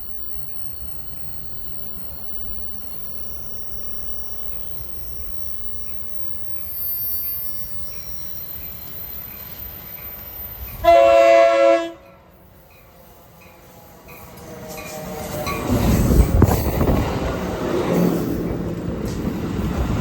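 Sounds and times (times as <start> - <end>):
train rumble: 0.0 - 20.0
locomotive air horn blast: 10.8 - 12.3.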